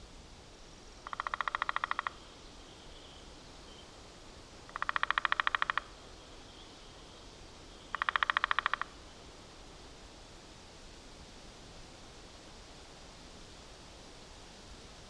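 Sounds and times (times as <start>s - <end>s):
low outdoor hiss: 0.0s - 15.0s.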